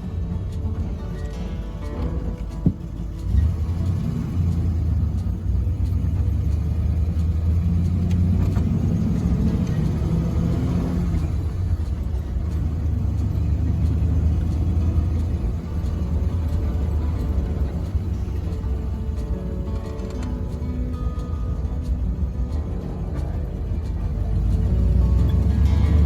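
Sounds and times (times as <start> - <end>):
car engine running: 0.0 - 26.0.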